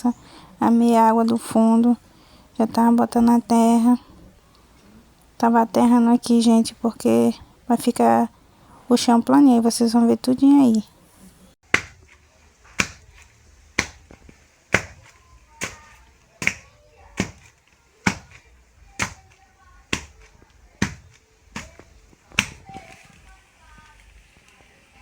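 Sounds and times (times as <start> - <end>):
heavy thuds pounding earth: 11.6 - 24.2.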